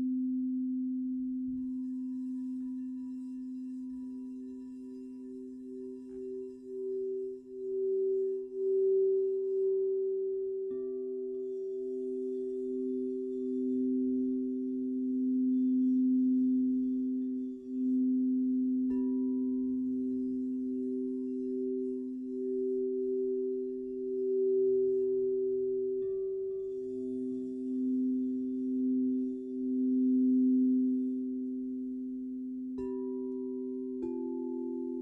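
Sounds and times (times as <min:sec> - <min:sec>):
crystal singing bowls ringing: 0:00.0 - 0:35.0.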